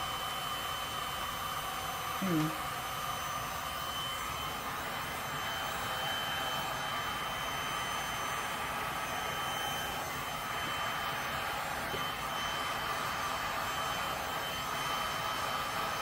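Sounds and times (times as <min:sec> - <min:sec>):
heat gun blowing: 0:00.0 - 0:16.0.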